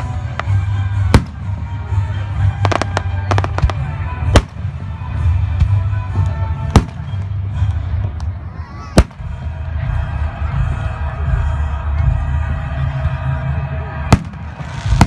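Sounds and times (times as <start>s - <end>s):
fireworks bangs: 0.0s - 5.9s, 6.6s - 7.4s, 9.0s - 9.4s, 14.1s - 15.0s
fireworks crackling: 0.0s - 8.3s, 14.1s - 15.0s.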